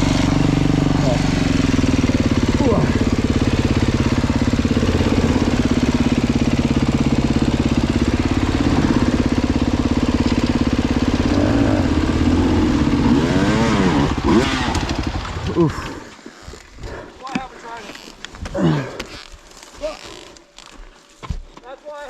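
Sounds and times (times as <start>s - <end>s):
dirt bike engine revving: 0.0s - 16.1s.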